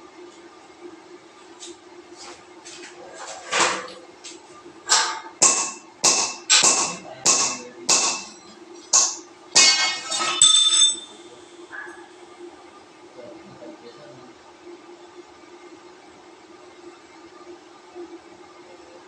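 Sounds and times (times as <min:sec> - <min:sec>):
sharp metallic strikes ringing: 0:05.4 - 0:11.6.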